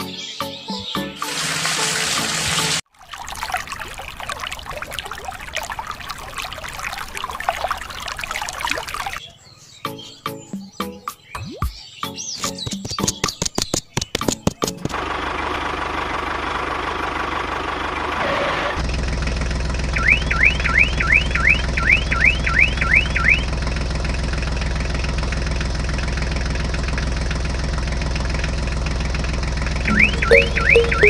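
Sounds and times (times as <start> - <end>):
rising whoops like car alarm: 29.9 - 31.0.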